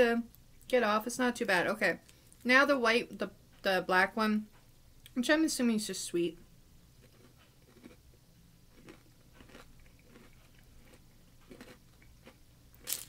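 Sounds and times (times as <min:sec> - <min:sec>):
person chewing crunchy snack: 0:07.0 - 0:08.1, 0:08.7 - 0:13.0.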